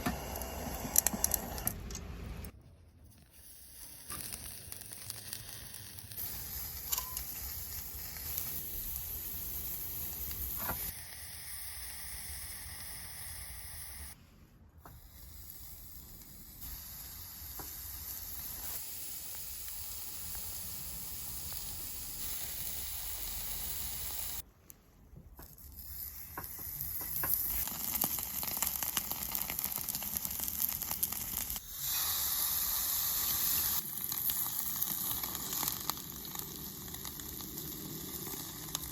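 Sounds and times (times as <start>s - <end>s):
meat sizzling on a grill: 3.8s - 14.2s, 16.6s - 24.4s, 26.4s - 38.9s.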